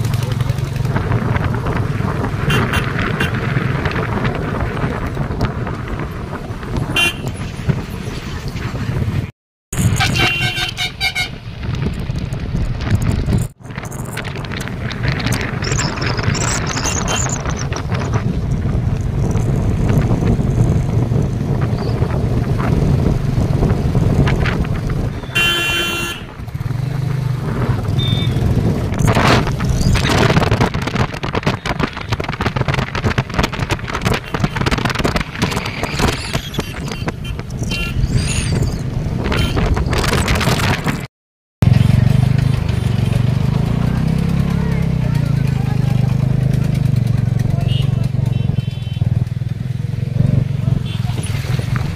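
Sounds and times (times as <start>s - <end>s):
rushing wind: 0.0s - 47.4s
vehicle horn: 7.0s - 7.3s, 9.9s - 11.4s, 25.3s - 26.3s, 36.7s - 38.0s, 39.3s - 39.7s, 47.5s - 49.1s.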